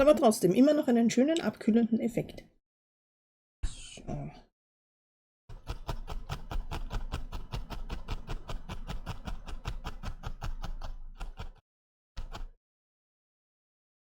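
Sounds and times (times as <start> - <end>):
fast series of short knocks: 5.5 - 11.6, 12.2 - 12.6.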